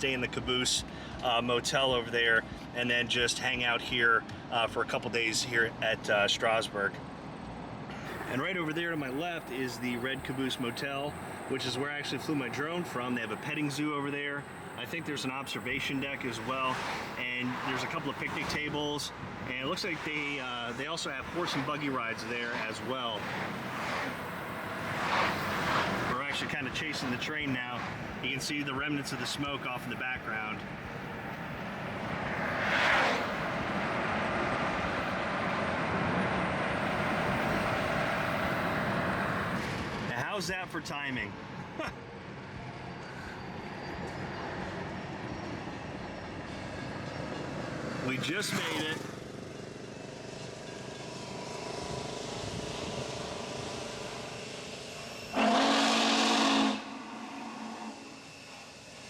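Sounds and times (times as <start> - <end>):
car road and wind noise: 0.0 - 55.4
steady background noise: 0.0 - 55.5, 56.8 - 59.0
steam hissing: 8.1 - 13.8, 22.5 - 27.2
steam locomotive whistle: 55.3 - 58.4.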